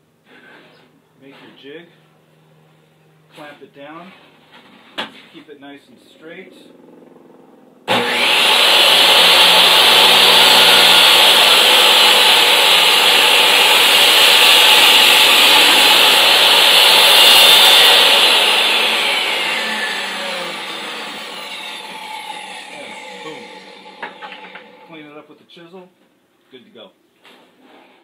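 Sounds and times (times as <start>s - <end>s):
table saw cutting wood: 7.9s - 25.0s.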